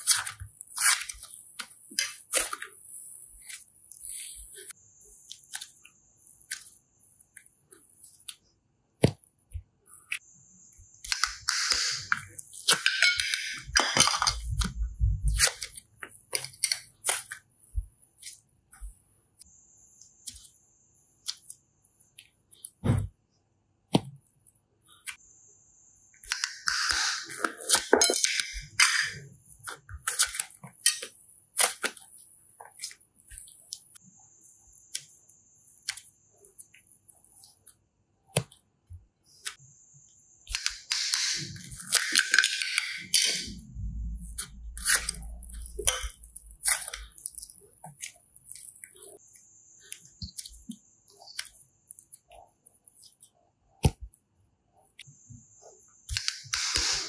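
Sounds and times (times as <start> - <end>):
slime squishing: 0.0 - 8.4, 29.4 - 34.0, 44.0 - 49.3
slime clicking and crackling: 44.2 - 49.2.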